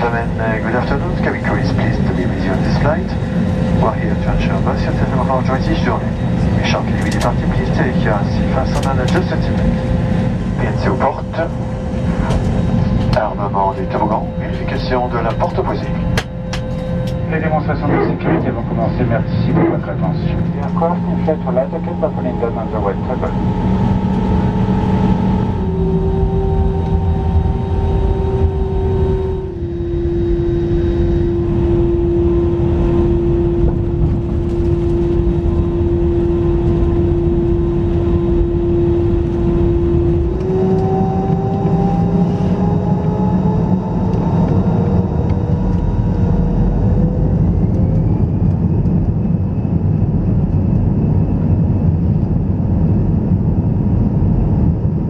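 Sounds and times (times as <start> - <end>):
jet engines heard from cabin: 0.0 - 55.0.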